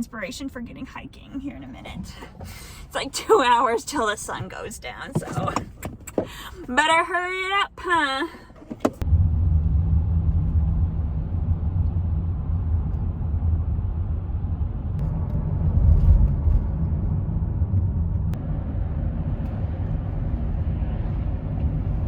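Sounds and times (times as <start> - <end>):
engine and road rumble in cabin: 0.0 - 22.0.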